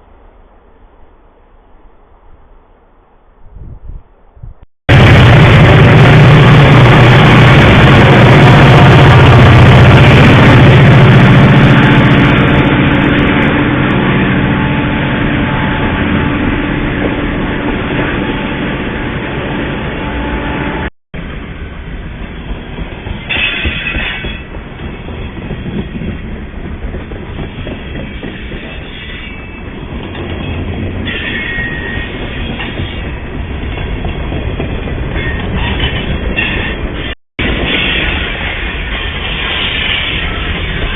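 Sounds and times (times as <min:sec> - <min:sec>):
diesel locomotive engine: 0:04.9 - 0:40.9
rail cars rattling past: 0:04.9 - 0:40.9
train wheel squeals: 0:23.1 - 0:26.1, 0:27.4 - 0:34.3, 0:35.1 - 0:40.9.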